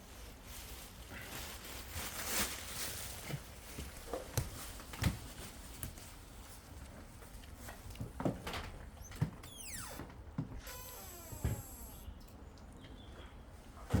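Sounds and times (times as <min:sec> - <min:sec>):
loud thumps: 0:09.3 - 0:12.0.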